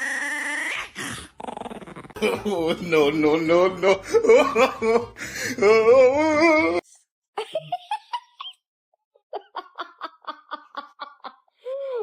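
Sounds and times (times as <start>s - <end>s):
person laughing: 2.2s - 6.8s, 9.3s - 12.0s
wavering voice: 5.5s - 7.0s.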